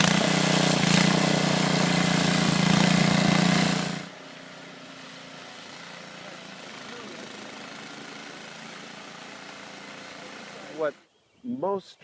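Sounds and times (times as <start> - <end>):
snowblower engine running: 0.0 - 11.0.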